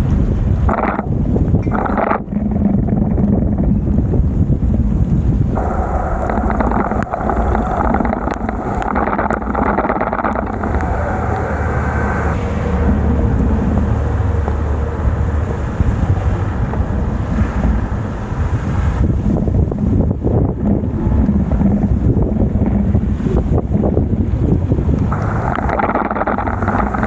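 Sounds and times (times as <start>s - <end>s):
wind on microphone: 0.0s - 27.0s
wet road noise hiss: 5.0s - 27.0s
sharp clicks: 5.6s - 13.1s, 25.0s - 27.0s.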